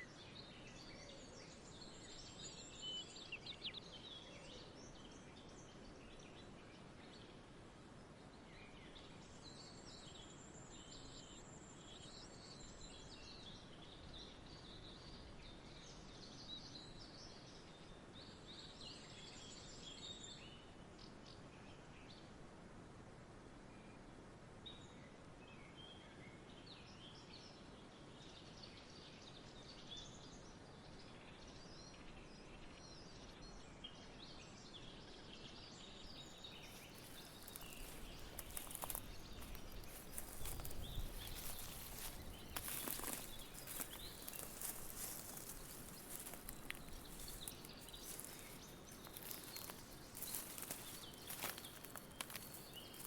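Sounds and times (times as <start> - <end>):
small birds chirping: 35.7 - 53.0
rustling and crackling: 36.5 - 53.0.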